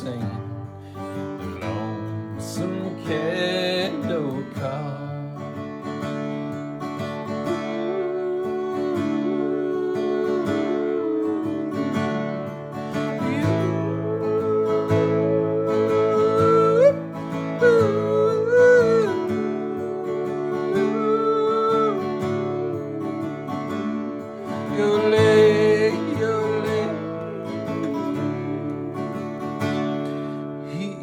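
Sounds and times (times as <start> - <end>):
strummed acoustic guitar: 0.0 - 31.0
person yodeling: 7.2 - 31.0.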